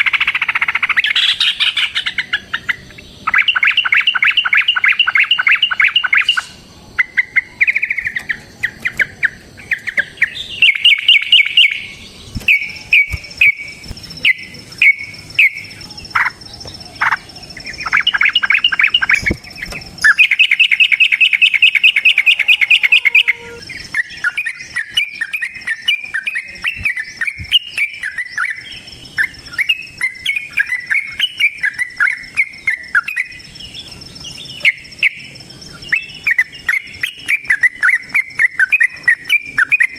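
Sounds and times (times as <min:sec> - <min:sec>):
bird chattering: 0:00.0 - 0:28.6
bird singing rattling trills: 0:00.0 - 0:39.9
faint high whine: 0:02.1 - 0:27.5.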